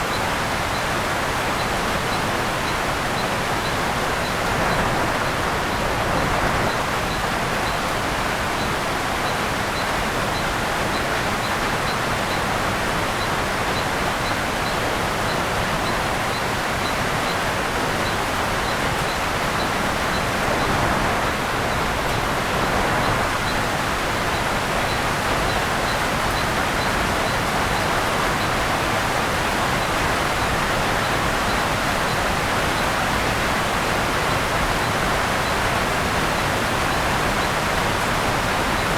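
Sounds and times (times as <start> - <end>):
steady rain on canopy: 0.0 - 38.9.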